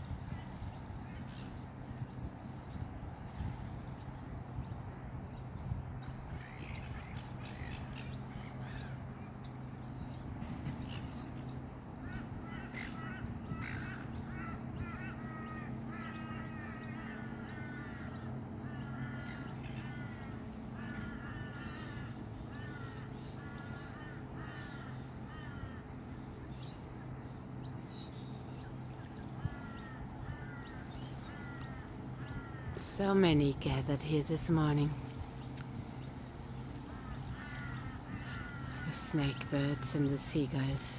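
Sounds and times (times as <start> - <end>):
low steady hum: 0.0 - 40.9
gulls calling: 10.4 - 40.9.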